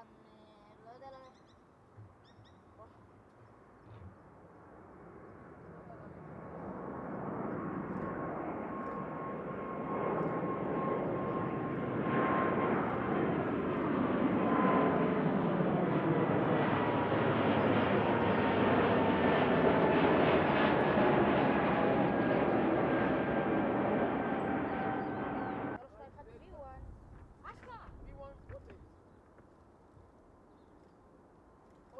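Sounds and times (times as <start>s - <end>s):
jet airliner engines roaring: 4.6s - 25.8s.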